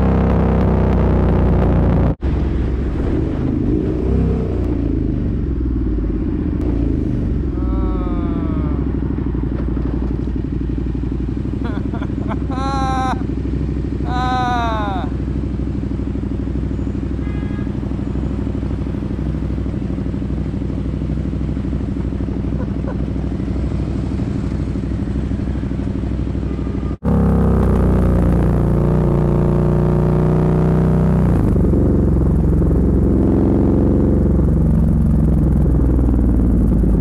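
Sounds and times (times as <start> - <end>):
motorcycle engine revving on the move: 0.0 - 37.0
motorcycle engine idling: 7.3 - 27.2, 34.1 - 37.0.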